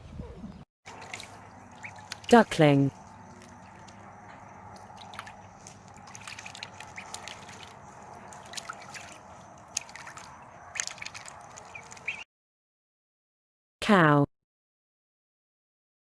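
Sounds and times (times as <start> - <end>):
ducklings splashing in water: 0.9 - 12.2
steady low water noise: 0.9 - 12.2.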